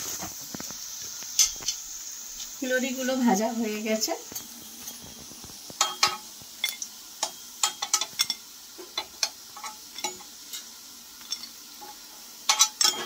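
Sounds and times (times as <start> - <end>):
fritters sizzling in oil: 0.0 - 13.0.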